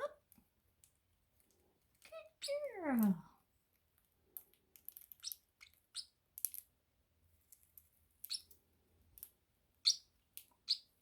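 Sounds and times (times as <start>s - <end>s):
parrotlets chirping: 2.3s - 2.7s, 5.0s - 6.2s, 8.2s - 8.5s, 9.8s - 11.0s.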